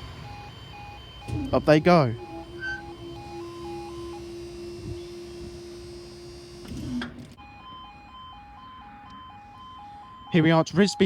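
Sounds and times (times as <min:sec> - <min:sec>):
barrier mechanism humming: 0:00.0 - 0:07.0
two-tone warning alarm: 0:00.0 - 0:11.0.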